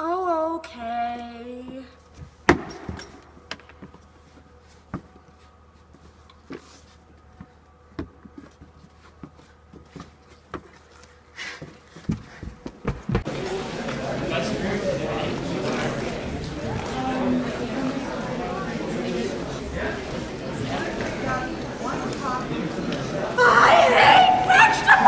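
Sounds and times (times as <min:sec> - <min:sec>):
footsteps thumping: 0:11.6 - 0:13.3.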